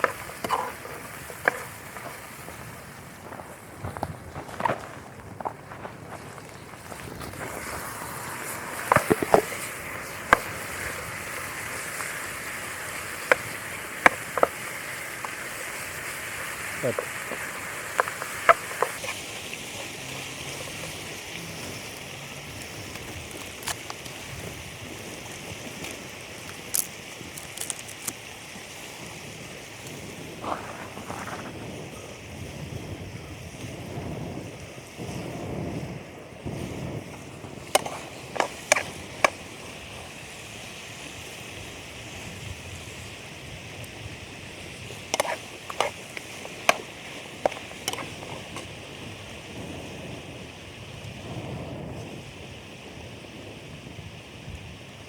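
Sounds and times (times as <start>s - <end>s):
rain hissing: 0.0s - 53.8s
sharp taps: 45.2s - 48.6s.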